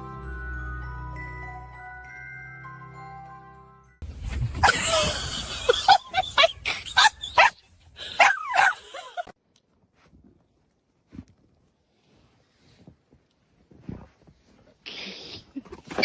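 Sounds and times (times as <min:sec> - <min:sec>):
dog barking and yipping: 0:05.9 - 0:09.3.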